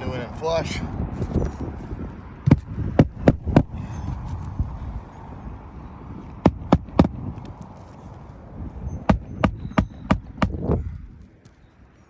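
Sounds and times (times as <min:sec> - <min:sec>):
hammer striking nails: 0:02.5 - 0:03.8, 0:06.4 - 0:07.2, 0:09.1 - 0:10.7.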